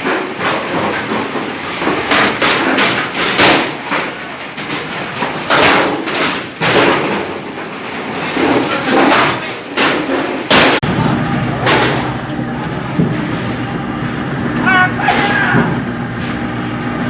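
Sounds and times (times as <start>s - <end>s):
thumps and clattering knocks: 0.0s - 10.9s.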